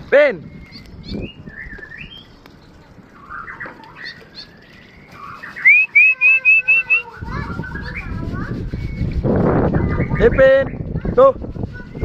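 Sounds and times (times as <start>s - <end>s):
birds chirping: 0.0s - 12.0s
rising whistled notes: 3.2s - 10.2s.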